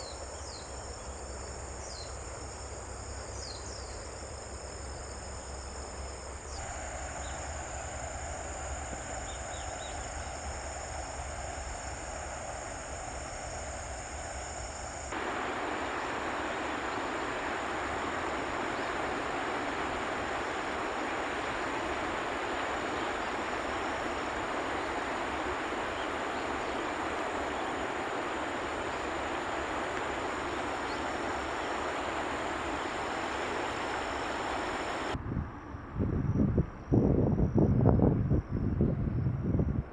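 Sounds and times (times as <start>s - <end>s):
insects trilling: 0.0s - 37.6s
even rushing noise: 15.1s - 35.2s.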